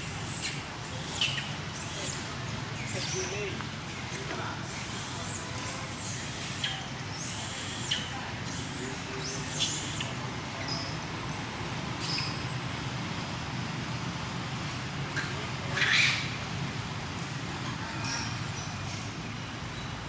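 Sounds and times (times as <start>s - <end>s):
monkeys squeaking and squealing: 0.0s - 3.5s, 4.6s - 11.0s, 15.7s - 16.3s.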